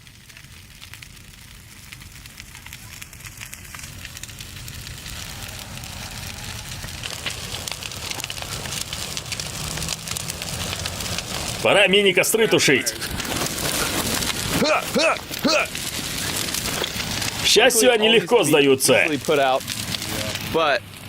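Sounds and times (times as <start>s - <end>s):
bonfire crackling: 0.0s - 21.0s.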